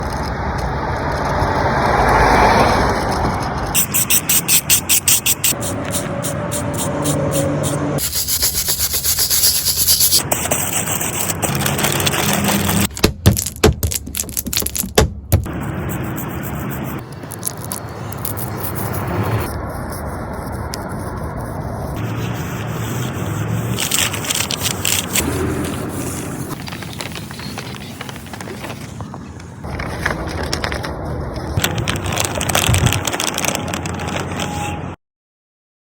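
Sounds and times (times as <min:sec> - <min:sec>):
peeler scraping: 0:02.8 - 0:28.5.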